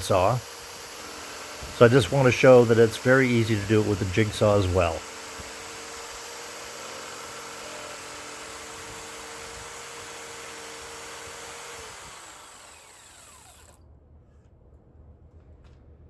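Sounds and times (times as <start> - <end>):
power tool motor whining: 0.0 - 13.8.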